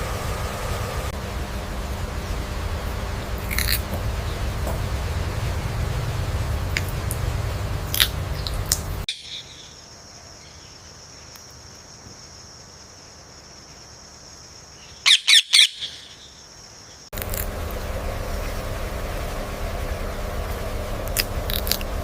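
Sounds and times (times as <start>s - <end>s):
parrot chirping: 14.9s - 16.4s
parrot squawking: 15.1s - 16.1s.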